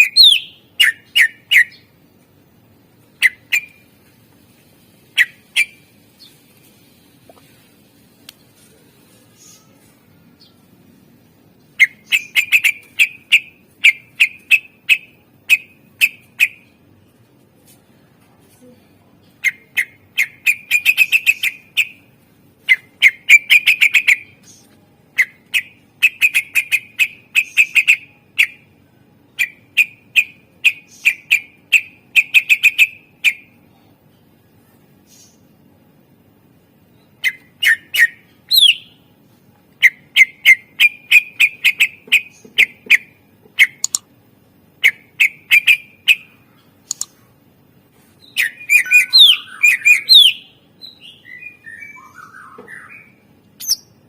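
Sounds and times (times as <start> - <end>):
leafbird singing sharp notes: 0.0 - 1.9, 48.2 - 53.9.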